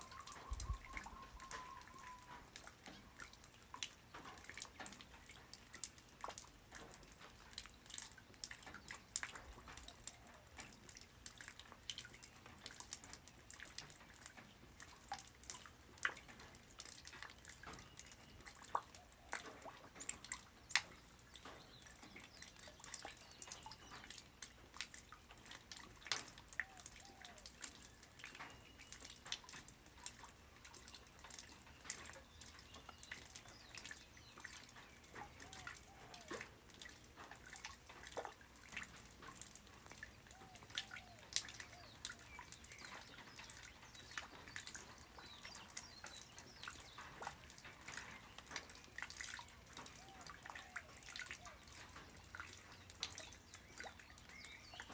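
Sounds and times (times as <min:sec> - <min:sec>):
faint short bird calls: 0:00.0 - 0:02.5
light rain falling: 0:00.0 - 0:54.9.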